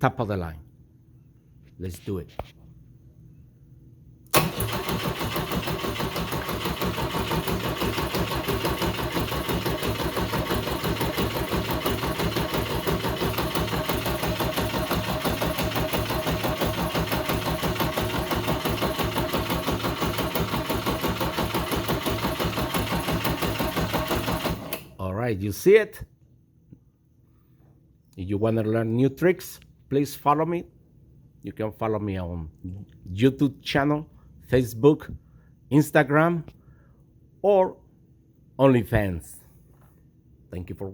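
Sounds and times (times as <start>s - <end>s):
engine cranking on starter: 4.3s - 25.0s.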